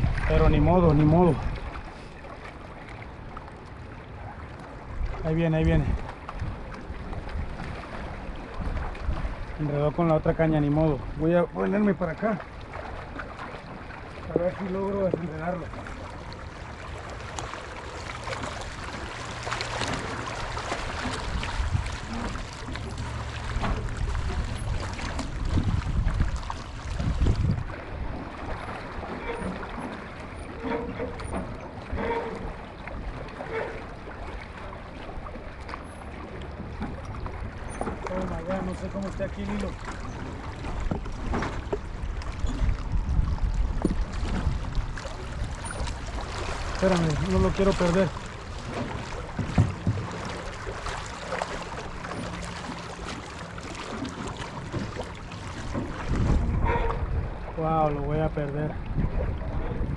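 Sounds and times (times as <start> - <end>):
wind buffeting microphone: 0.0 - 1.9, 4.8 - 11.9, 18.3 - 29.8, 36.6 - 53.0, 53.6 - 59.9
water lapping: 0.0 - 59.9.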